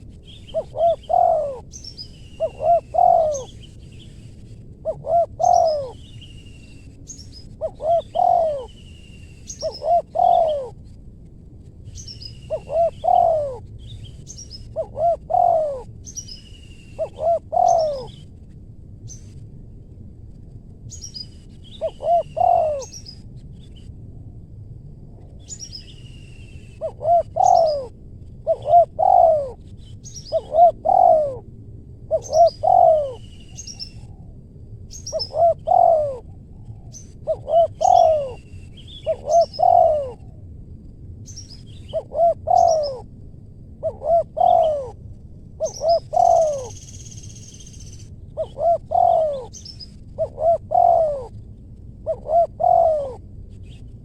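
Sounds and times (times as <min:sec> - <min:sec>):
dove cooing: 0:00.0 - 0:01.8, 0:02.4 - 0:03.7, 0:04.8 - 0:06.1, 0:07.5 - 0:08.8, 0:09.5 - 0:10.8, 0:12.5 - 0:13.7, 0:14.7 - 0:15.9, 0:17.0 - 0:18.2, 0:21.8 - 0:23.0, 0:26.8 - 0:29.6, 0:30.2 - 0:31.4, 0:32.1 - 0:34.4, 0:35.0 - 0:38.4, 0:39.0 - 0:40.4, 0:41.9 - 0:43.1, 0:43.8 - 0:45.0, 0:45.6 - 0:46.9, 0:48.4 - 0:51.4, 0:52.0 - 0:53.3
small birds chirping: 0:00.0 - 0:10.8, 0:11.9 - 0:18.3, 0:20.9 - 0:23.9, 0:25.4 - 0:27.9, 0:28.5 - 0:31.4, 0:32.2 - 0:34.2, 0:34.9 - 0:40.2, 0:41.2 - 0:43.0, 0:45.6 - 0:54.0.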